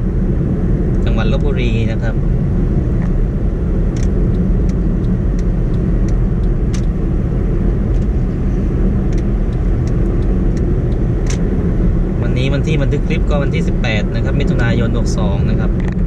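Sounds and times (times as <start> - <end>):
vehicle rumbling along a road: 0.0 - 16.0.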